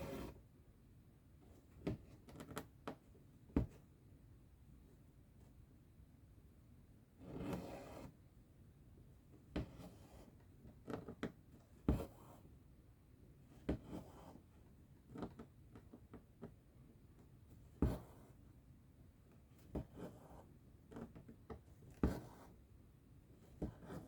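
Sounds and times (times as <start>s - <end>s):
thread drawn with soft rasp: 7.2s - 8.2s, 9.5s - 11.0s, 11.8s - 12.5s, 19.7s - 22.6s, 23.5s - 24.0s
needle tapping through fabric: 10.8s - 12.2s.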